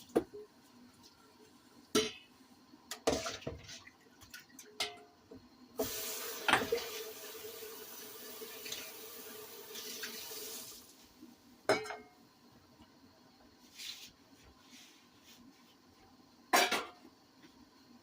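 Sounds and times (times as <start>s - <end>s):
kitchen faucet running: 5.8s - 10.9s
soft scrape: 13.6s - 15.8s.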